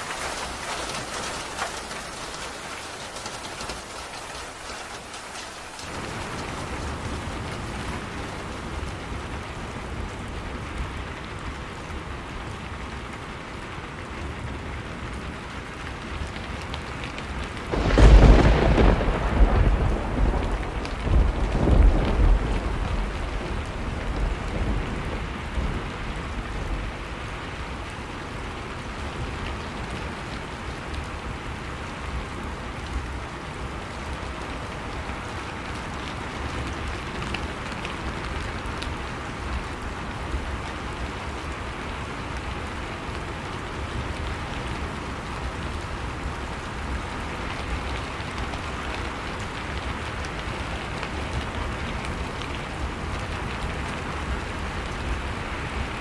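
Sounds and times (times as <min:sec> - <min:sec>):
rain pattering: 0:00.0 - 0:56.0
thunder rumble: 0:17.5 - 0:27.7.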